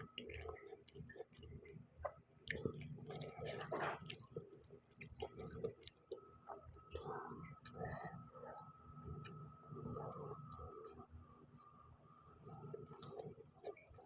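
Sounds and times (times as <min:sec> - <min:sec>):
chewing noodles: 0:00.0 - 0:01.8, 0:02.4 - 0:11.7, 0:12.4 - 0:14.0.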